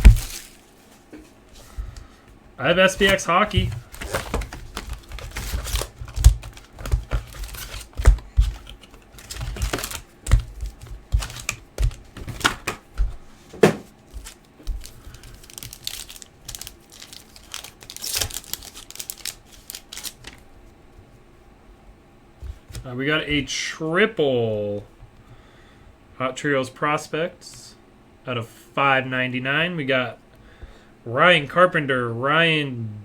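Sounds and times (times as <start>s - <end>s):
foil wrappers crinkling and tearing: 0.0s - 1.8s, 2.6s - 13.1s, 14.1s - 20.4s
cards clicking and tapping: 2.7s - 20.4s.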